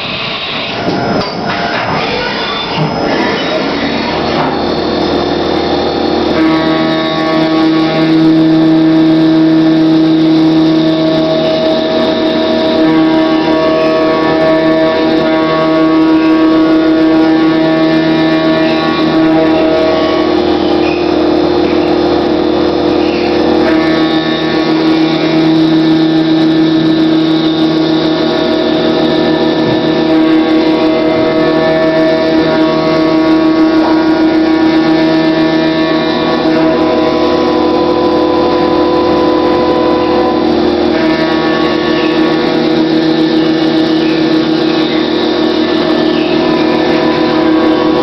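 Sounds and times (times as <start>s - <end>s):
mill spindle whine: 0.0s - 48.0s.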